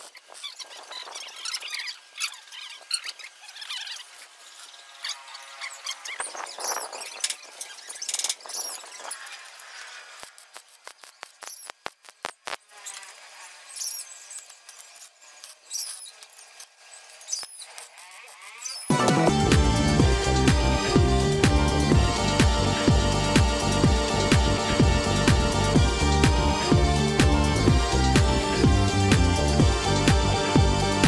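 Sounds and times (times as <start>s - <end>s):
high squeaky chirps: 0.0s - 9.5s, 15.6s - 16.4s, 17.0s - 19.0s
arc welding crackling: 3.4s - 31.0s.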